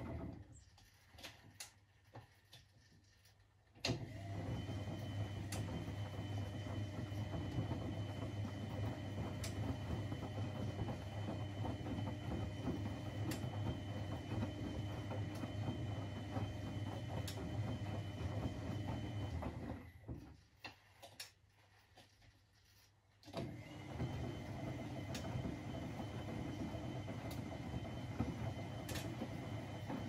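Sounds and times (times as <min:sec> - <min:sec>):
washing machine motor hum: 0:00.0 - 0:01.6, 0:03.8 - 0:21.7, 0:23.2 - 0:30.0
washing machine clicks: 0:28.2 - 0:30.0.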